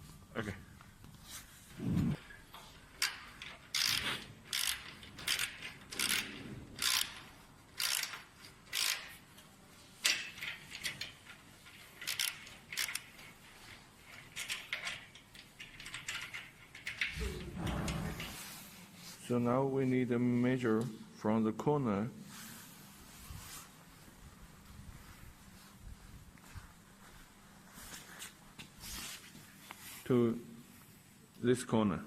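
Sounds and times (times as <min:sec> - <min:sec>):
metallic tool clicks and scrapes: 0:07.8 - 0:09.1.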